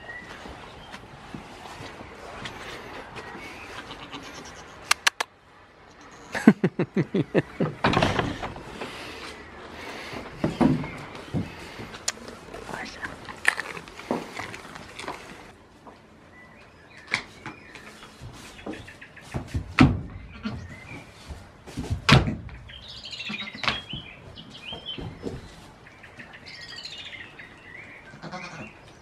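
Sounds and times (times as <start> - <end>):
songbirds warbling: 22.7 - 29.0.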